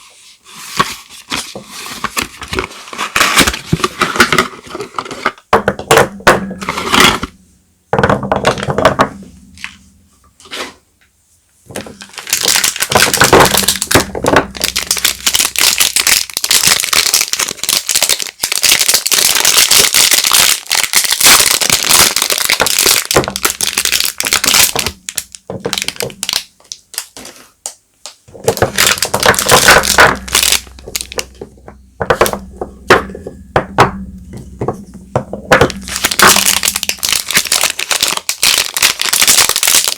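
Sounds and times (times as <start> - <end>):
wrappers crinkling: 11.8 - 32.6, 35.5 - 39.9
small knocks: 28.3 - 36.0.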